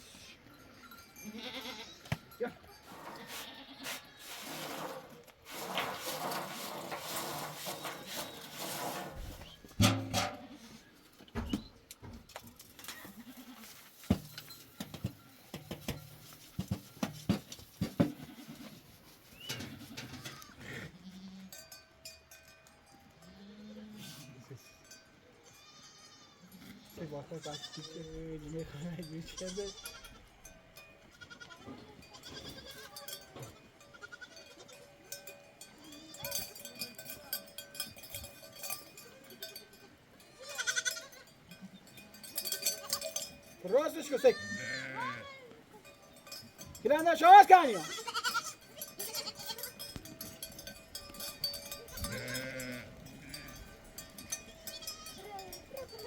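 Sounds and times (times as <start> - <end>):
animal bells clinking: 0.0 - 10.6, 12.2 - 20.5, 21.2 - 56.0
goats and sheep bleating: 1.1 - 11.0, 12.9 - 14.0, 17.8 - 21.7, 23.2 - 24.6, 25.4 - 37.4, 39.0 - 50.4, 51.0 - 56.0
quavering bleat: 1.2 - 2.1, 2.8 - 4.5, 25.5 - 28.2, 33.9 - 34.6, 40.4 - 41.3, 44.3 - 45.4, 47.7 - 49.7, 51.9 - 53.6.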